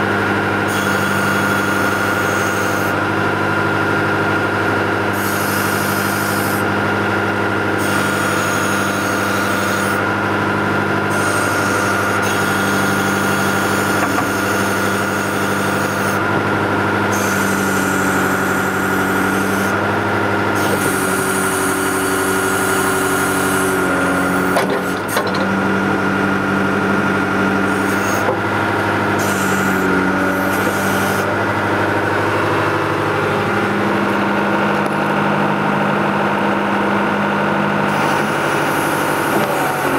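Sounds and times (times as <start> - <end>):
diesel engine running: 0.0 - 39.9
high whine: 23.7 - 39.9
sharp clunk: 24.6 - 25.5.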